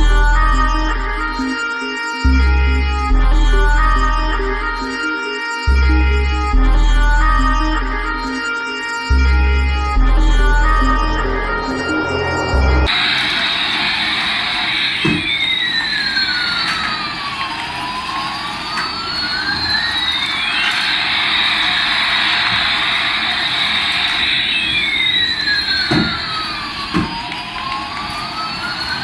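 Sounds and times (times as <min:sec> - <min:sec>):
toy jet engine sound effect: 0:11.6 - 0:29.0.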